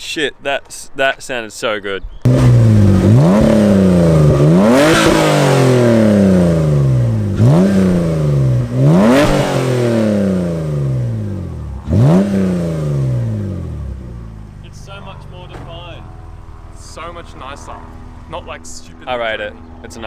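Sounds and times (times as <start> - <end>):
car engine revving: 2.3 - 20.0.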